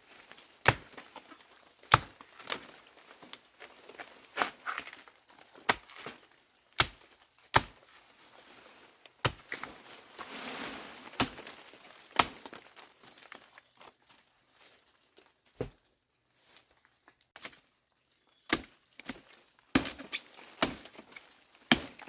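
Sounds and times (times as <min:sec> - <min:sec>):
short rustle: 0:09.6 - 0:11.8.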